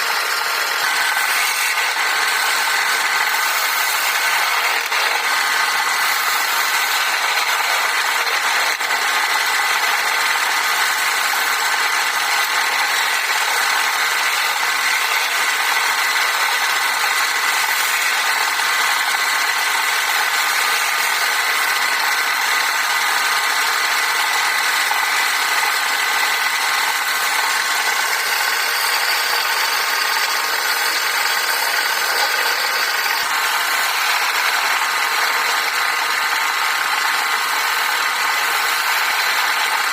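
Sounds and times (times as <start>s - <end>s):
lathe motor whine: 0.0s - 39.9s
hiss of wood being turned: 0.1s - 7.8s.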